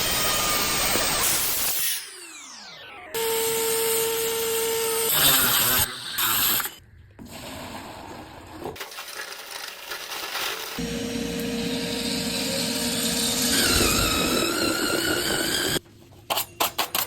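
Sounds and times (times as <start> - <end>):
power tool grinding tile: 3.2 - 6.7, 8.8 - 15.8
motor running with steady whine: 10.8 - 15.8
motor spinning down: 10.8 - 15.8.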